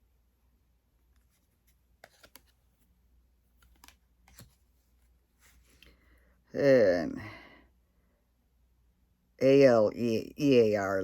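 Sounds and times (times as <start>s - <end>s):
trading cards clicking on table: 2.0s - 2.5s.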